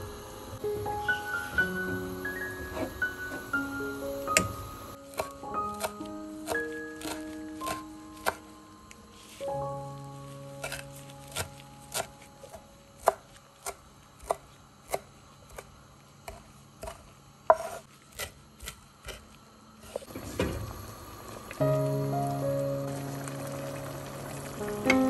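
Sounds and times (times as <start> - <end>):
knife chopping on wooden board: 5.1 - 8.4, 16.3 - 19.2.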